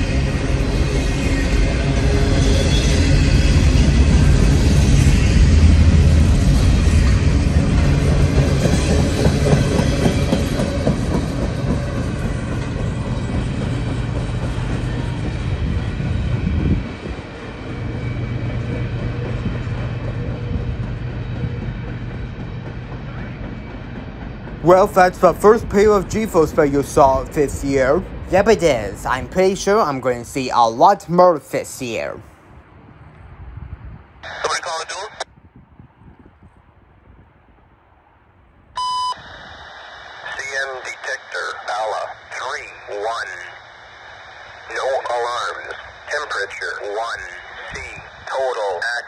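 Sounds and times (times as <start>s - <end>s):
freight train wheels rumbling: 0.0s - 34.3s.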